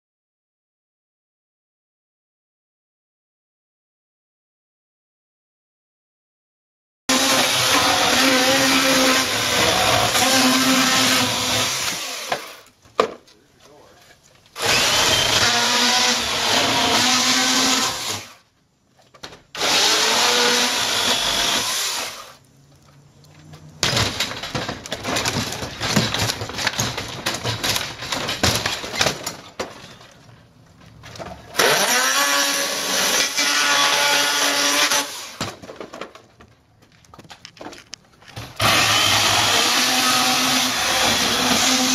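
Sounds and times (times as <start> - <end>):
chainsaw cutting into door: 7.1 - 12.6, 14.6 - 18.4, 19.5 - 22.4, 31.5 - 35.6, 38.4 - 41.9
chainsaw revving: 14.6 - 18.4, 19.6 - 22.4, 31.6 - 35.4, 38.6 - 41.9.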